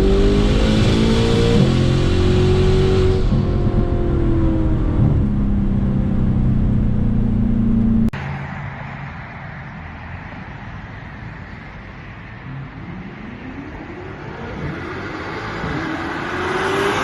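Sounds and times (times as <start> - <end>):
car engine running: 0.0 - 8.2
road noise: 0.0 - 17.0.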